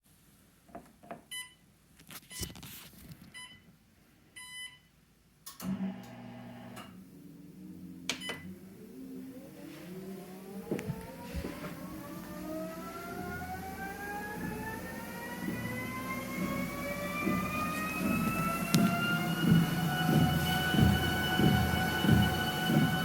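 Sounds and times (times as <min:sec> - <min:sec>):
treadmill console beeping: 0:01.3 - 0:01.6, 0:03.4 - 0:03.7, 0:04.4 - 0:04.9, 0:08.1 - 0:23.0
treadmill motor humming and whining: 0:05.6 - 0:23.0.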